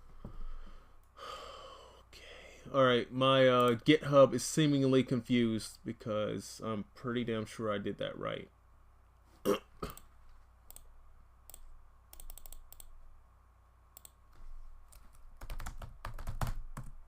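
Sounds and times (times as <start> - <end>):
typing on computer keyboard: 12.2 - 12.9, 14.9 - 17.0.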